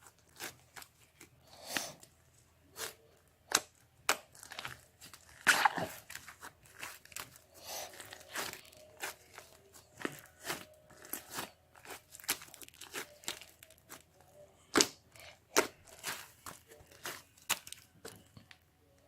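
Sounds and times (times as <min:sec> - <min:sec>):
sharp crunching and crinkling: 0:00.0 - 0:02.0, 0:02.7 - 0:18.6.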